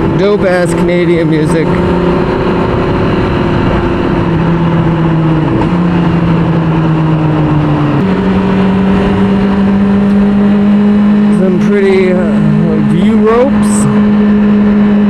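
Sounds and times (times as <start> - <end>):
wind rush: 0.0 - 11.3
motorcycle engine running: 0.0 - 15.0.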